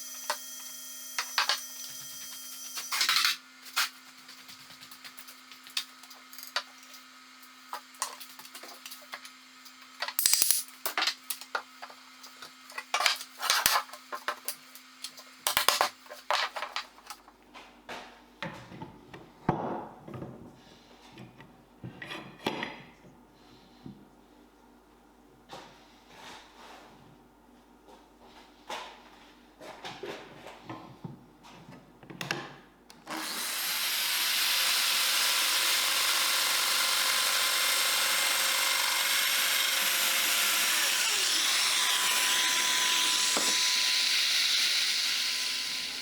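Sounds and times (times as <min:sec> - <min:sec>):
wooden pieces and tools clattering: 0:07.8 - 0:14.5, 0:15.5 - 0:17.3.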